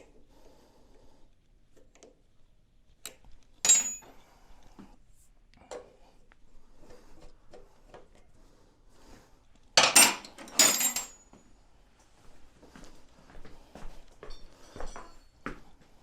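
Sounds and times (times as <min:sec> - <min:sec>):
metal tools clattering: 0:03.6 - 0:04.2, 0:09.8 - 0:11.3.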